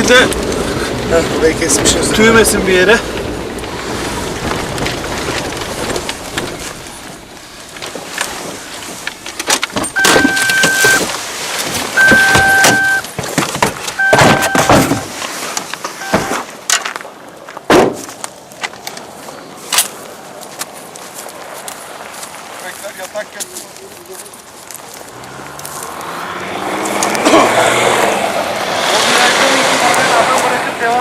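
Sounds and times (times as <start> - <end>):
vehicle rumbling over rough ground: 0.0 - 31.0
rattles and knocks: 4.3 - 11.1
electronic beeps: 10.0 - 11.1, 12.0 - 13.1, 14.0 - 15.0, 16.0 - 16.4.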